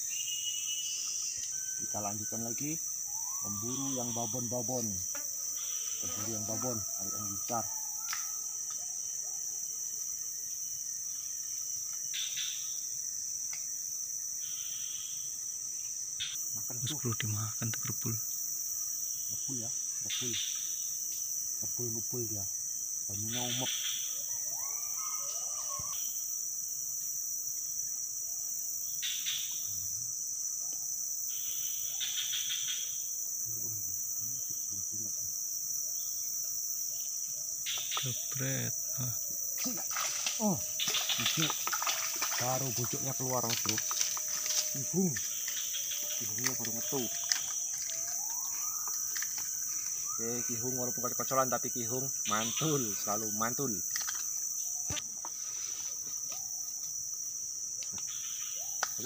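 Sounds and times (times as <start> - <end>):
insect chorus drone: 0.0 - 59.0
scuffs or splashes: 39.8 - 42.9.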